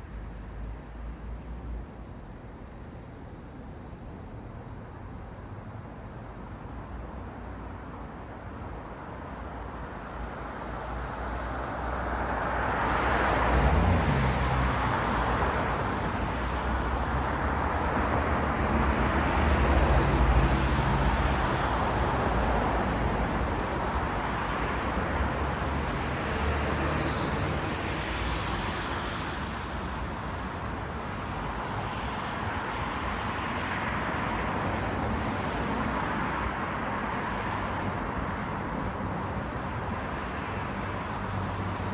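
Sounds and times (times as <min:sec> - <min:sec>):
steady traffic hum: 0:00.0 - 0:41.9
vehicles passing: 0:11.2 - 0:41.9.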